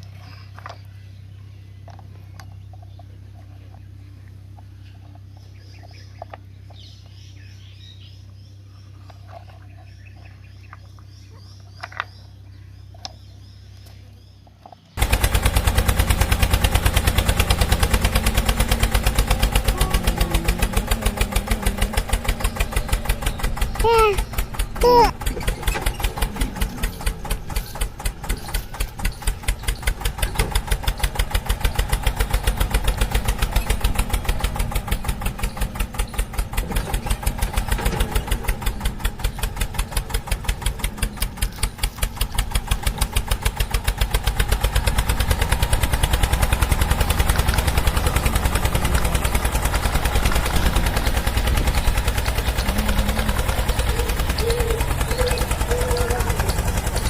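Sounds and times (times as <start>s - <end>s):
tractor engine chugging: 15.0s - 57.0s.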